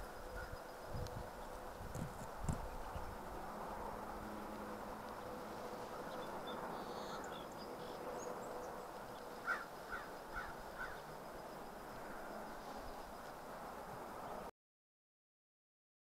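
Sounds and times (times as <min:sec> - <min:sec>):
outdoor background hiss: 0:00.0 - 0:14.5
bird calling: 0:05.2 - 0:11.1.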